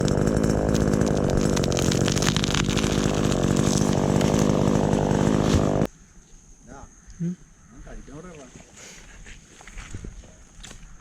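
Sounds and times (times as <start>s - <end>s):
chainsaw engine running: 0.0s - 5.9s.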